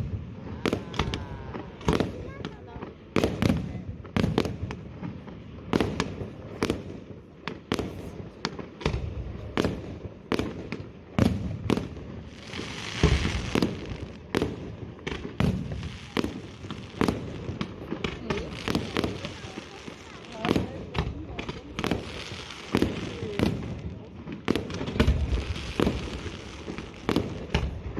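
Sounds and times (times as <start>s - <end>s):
hissing crackle of fireworks: 0.0s - 27.9s.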